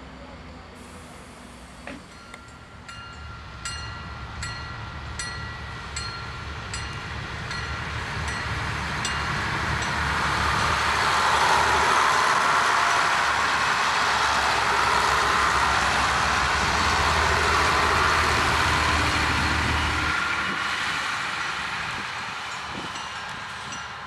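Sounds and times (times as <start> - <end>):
diesel railcar passing: 0.0 - 24.0.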